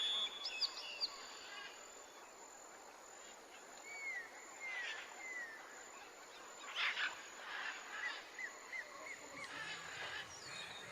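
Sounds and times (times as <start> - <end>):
bird whistling and chirping: 0.0 - 1.1.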